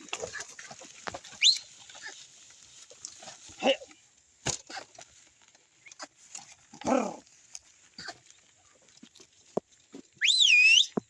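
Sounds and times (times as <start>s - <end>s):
farm animal calls: 0.0s - 2.4s, 5.7s - 9.0s.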